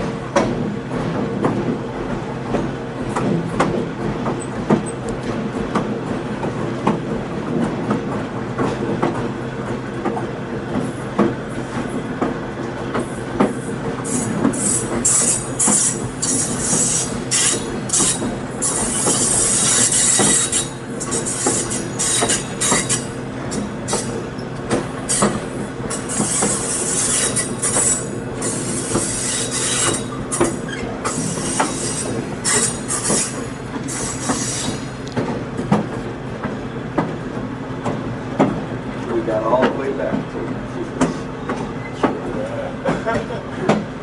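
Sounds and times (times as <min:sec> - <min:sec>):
rail clacks: 0:00.0 - 0:44.0
train running gear rumble: 0:00.0 - 0:44.0
train wheels squealing: 0:14.0 - 0:24.5, 0:25.1 - 0:35.0.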